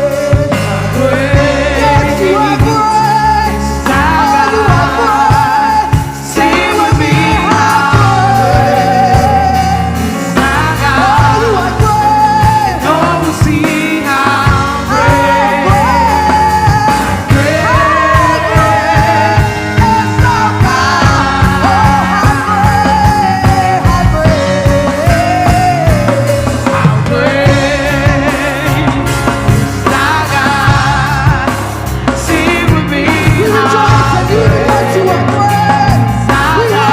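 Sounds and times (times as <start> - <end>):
bass: 0.0 - 36.9
drums: 0.0 - 36.9
people singing: 0.0 - 36.9
worship band playing: 0.0 - 36.9.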